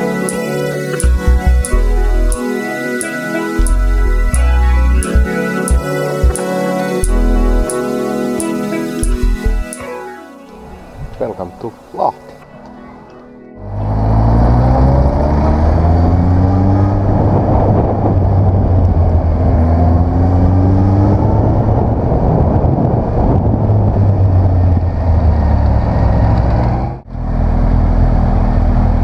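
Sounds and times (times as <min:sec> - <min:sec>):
wind noise: 0:14.5 - 0:27.0.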